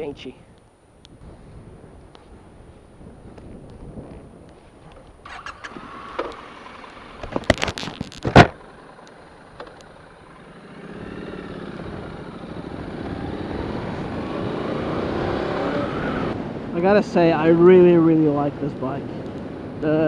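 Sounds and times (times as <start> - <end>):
motorcycle engine running: 3.2 - 16.7.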